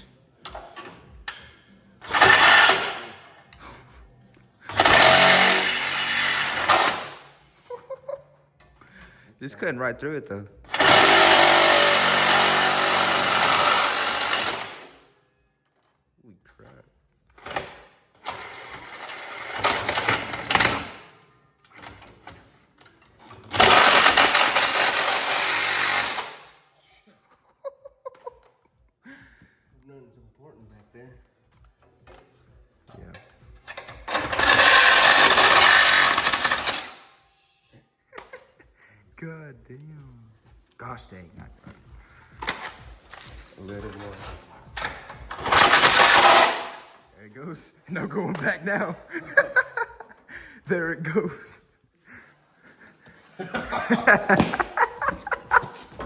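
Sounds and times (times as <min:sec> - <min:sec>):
power saw cutting metal pipe: 0:02.0 - 0:03.4, 0:04.7 - 0:07.3, 0:10.7 - 0:15.0, 0:18.2 - 0:21.0, 0:23.4 - 0:26.6, 0:33.7 - 0:37.1, 0:43.7 - 0:47.0.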